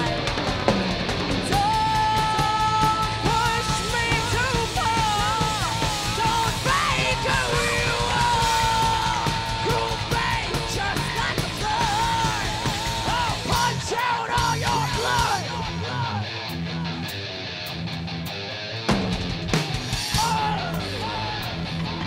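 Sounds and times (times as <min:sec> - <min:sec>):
heavy metal band playing live: 0:00.0 - 0:22.0
high wavering lead vocal: 0:01.5 - 0:17.3, 0:20.0 - 0:21.8.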